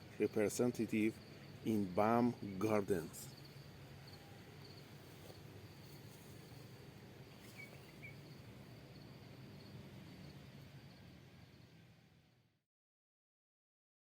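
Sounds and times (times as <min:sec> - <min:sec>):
higher insect chirps: 0:00.0 - 0:11.8
insect trilling: 0:01.2 - 0:09.0.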